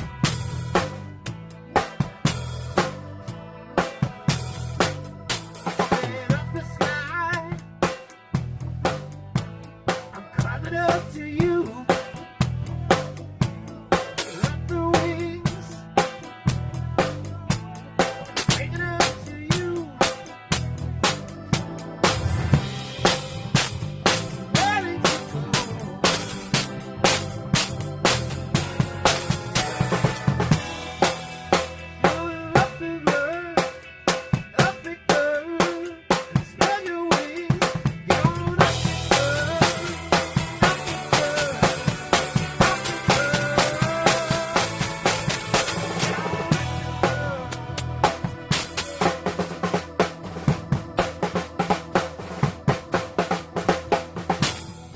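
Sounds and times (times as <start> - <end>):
bass line: 0.0 - 35.3, 37.4 - 54.9
drum kit steady beat: 0.0 - 54.9
electric guitar lead with bends: 11.6 - 34.6, 38.0 - 54.9.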